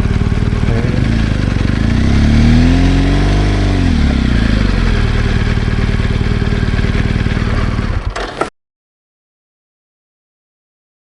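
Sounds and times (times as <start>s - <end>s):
motorcycle engine pulling away: 0.0s - 8.5s.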